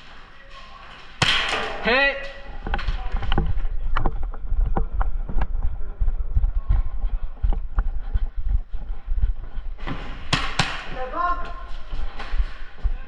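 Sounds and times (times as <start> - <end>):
footsteps: 0.0 - 13.0
microphone handling rumble: 2.4 - 10.4
sharp knocks: 10.3 - 11.0.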